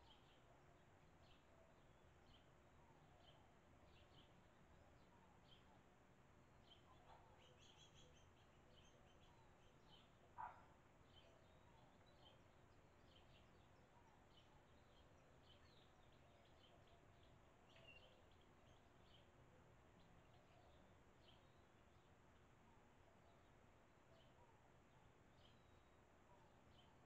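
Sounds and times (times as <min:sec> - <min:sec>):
swallows chirping and twittering: 0:06.7 - 0:21.6.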